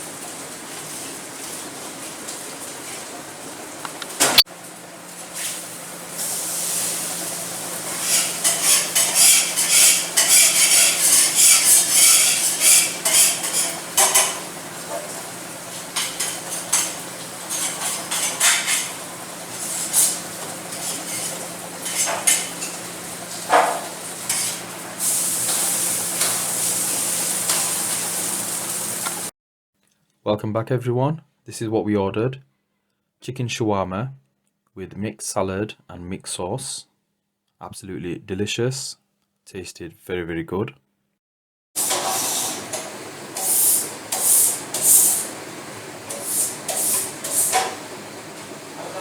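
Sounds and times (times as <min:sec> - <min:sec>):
food sizzling: 0:00.0 - 0:29.3, 0:41.8 - 0:49.0
metal utensils scraping a pan: 0:07.9 - 0:15.1, 0:15.9 - 0:22.9, 0:23.5 - 0:26.5, 0:27.4 - 0:28.0, 0:41.8 - 0:45.3, 0:46.1 - 0:47.8.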